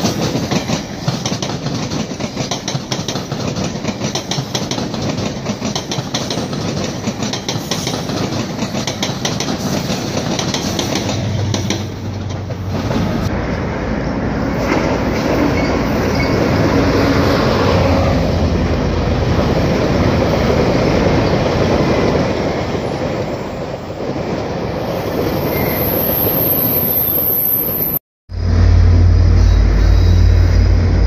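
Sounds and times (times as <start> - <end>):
train wheels rumbling and rattling: 0.0 - 26.6
diesel locomotive rumble: 28.3 - 31.0.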